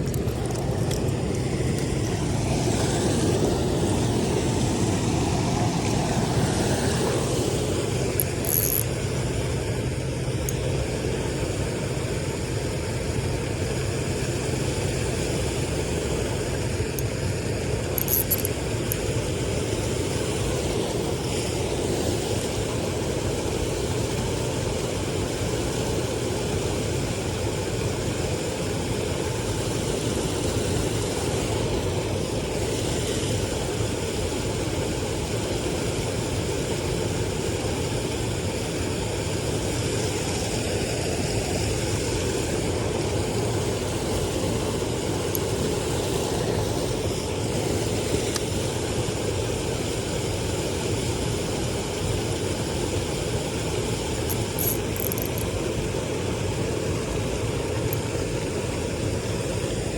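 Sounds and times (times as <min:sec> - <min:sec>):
engine droning: 0:00.0 - 0:23.4.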